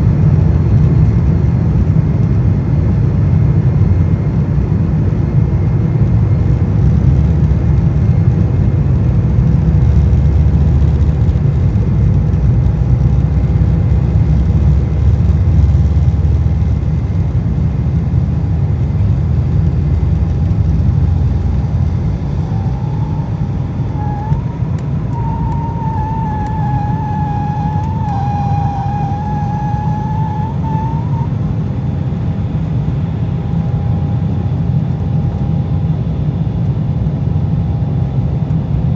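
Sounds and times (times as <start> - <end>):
airliner cabin rumble: 0.0 - 38.6
thin wavering whine: 6.0 - 35.8.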